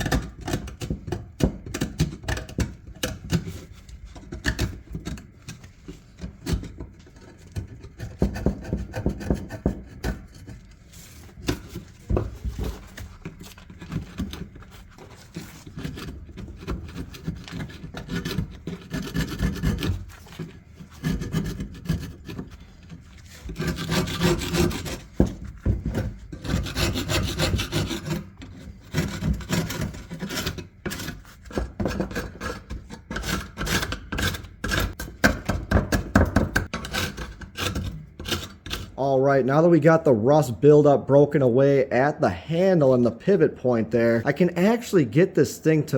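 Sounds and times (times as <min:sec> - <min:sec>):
screwdriver scraping rust off iron: 0:08.6 - 0:39.0.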